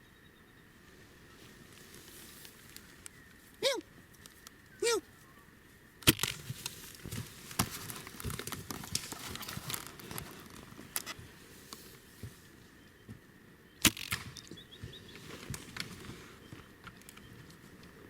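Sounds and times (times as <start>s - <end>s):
twig snapping: 6.0s - 10.0s, 13.8s - 14.5s.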